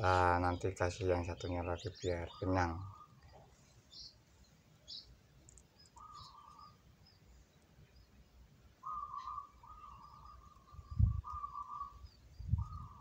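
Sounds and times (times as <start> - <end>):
buzzy trilling bird call: 5.8 - 6.8, 8.8 - 13.0
short high bird chirps: 8.8 - 13.0.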